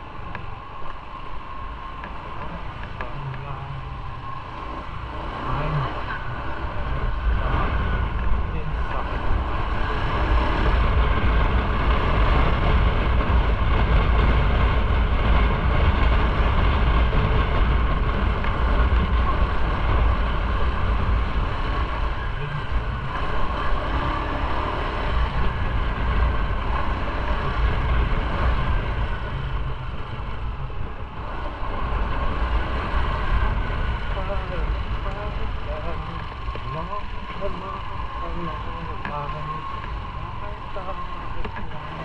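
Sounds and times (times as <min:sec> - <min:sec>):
motorcycle engine drone: 0:00.0 - 0:42.0
wind rumble on microphone: 0:00.0 - 0:42.0.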